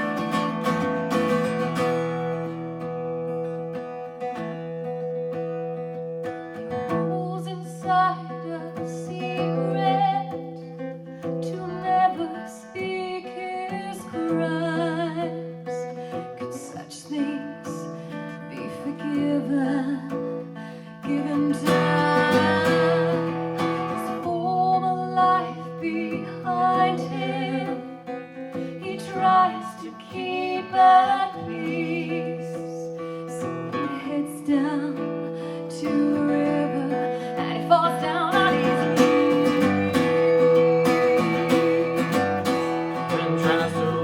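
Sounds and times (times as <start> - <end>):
acoustic guitar strummed chords: 0.0 - 44.0
person singing long wavering notes: 35.9 - 44.0.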